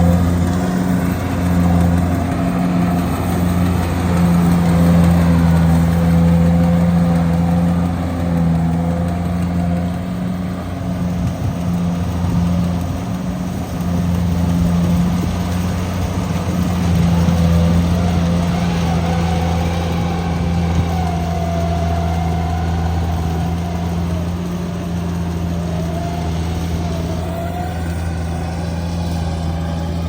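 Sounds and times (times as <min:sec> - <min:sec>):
farm machinery engine droning: 0:00.0 - 0:30.0.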